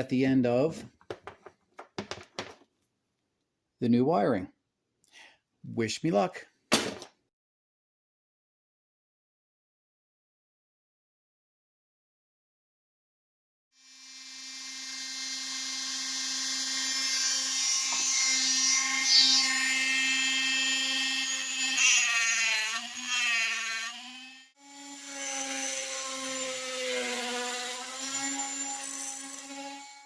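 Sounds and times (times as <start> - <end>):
rotary tool cutting metal: 13.8 - 30.0.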